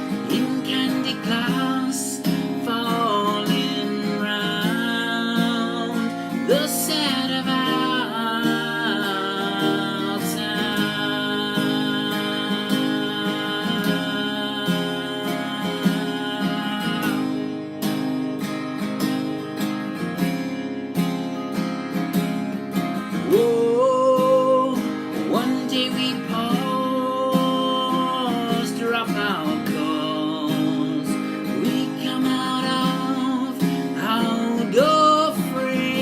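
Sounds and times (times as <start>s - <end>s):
acoustic guitar strummed and picked: 0.0s - 36.0s.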